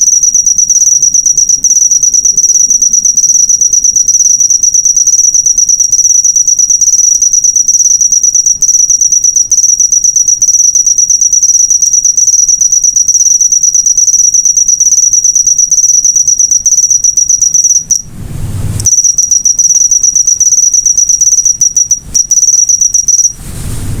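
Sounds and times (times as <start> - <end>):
cricket chirping: 0.0 - 18.0, 18.9 - 23.3
low rumble: 18.0 - 18.9, 23.4 - 24.0.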